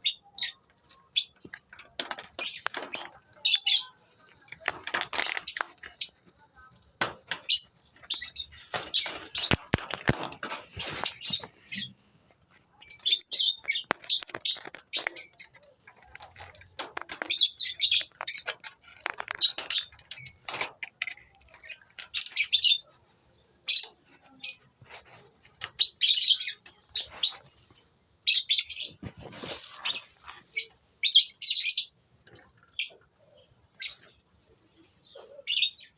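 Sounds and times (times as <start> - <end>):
lovebirds chirping and squawking: 0.0 - 35.9.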